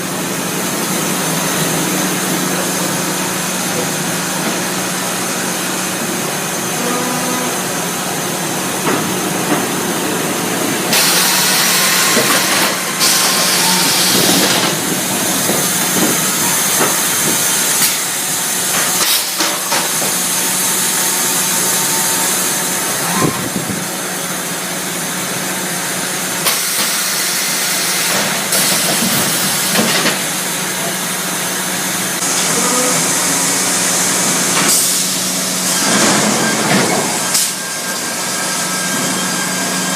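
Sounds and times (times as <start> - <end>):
sawmill machine hum: 0.0 - 39.9
loud high hissing of saw: 10.9 - 15.4.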